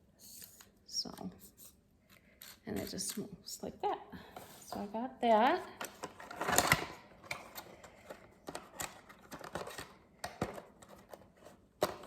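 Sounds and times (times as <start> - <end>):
clicks and taps of small items: 5.8 - 11.2.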